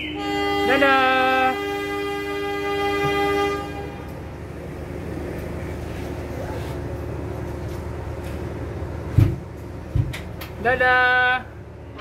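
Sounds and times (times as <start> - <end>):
diesel locomotive horn: 0.0 - 4.4
train low rumble: 0.0 - 12.0.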